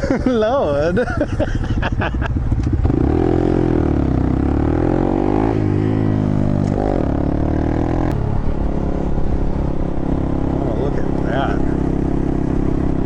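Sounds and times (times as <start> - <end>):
small motorcycle engine revving: 2.4 - 8.2.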